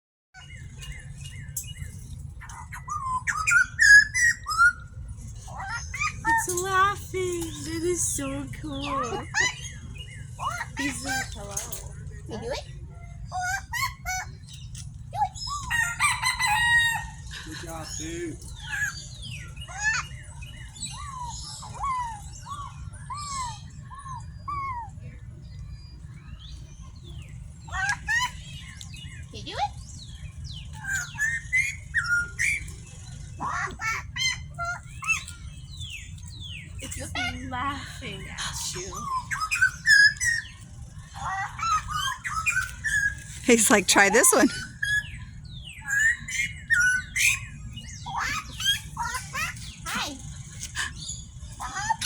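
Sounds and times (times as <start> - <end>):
gliding whistle-like bird calls: 2.8 - 5.0.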